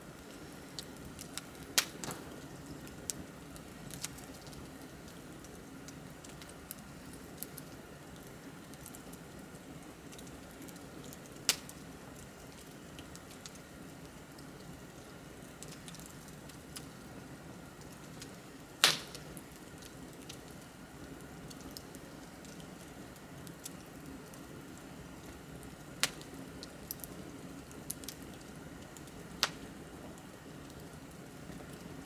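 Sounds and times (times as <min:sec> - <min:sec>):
bonfire crackling: 0:00.0 - 0:32.0
sharp fire pops: 0:01.2 - 0:03.2, 0:11.4 - 0:11.8, 0:18.8 - 0:19.4, 0:29.4 - 0:29.6.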